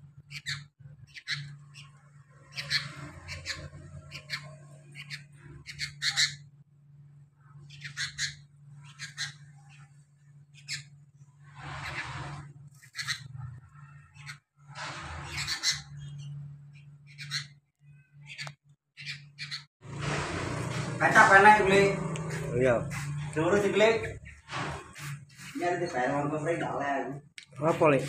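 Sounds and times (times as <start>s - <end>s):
steady low hum: 0.0s - 28.0s
bird chicks calling: 0.2s - 6.6s, 7.6s - 26.1s.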